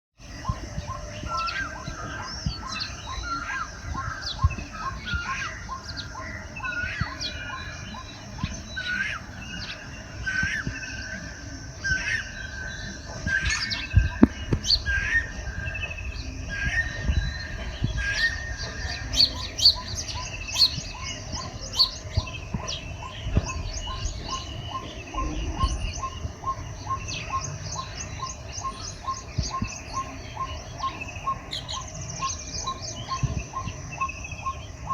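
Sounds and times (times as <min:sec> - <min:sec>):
birds chirping and whistling: 0:00.2 - 0:34.9
low rumble: 0:13.9 - 0:29.9.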